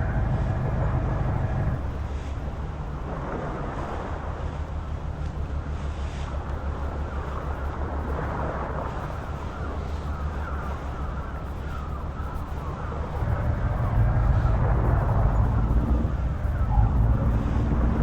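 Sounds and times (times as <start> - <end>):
truck engine humming: 0.0 - 2.9, 12.8 - 18.0.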